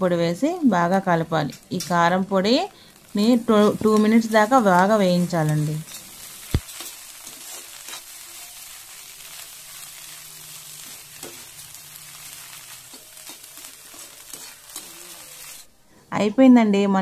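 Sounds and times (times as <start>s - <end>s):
egg frying in oil: 1.6s - 15.7s
steel spatula scraping pan: 5.9s - 8.7s, 10.6s - 15.7s.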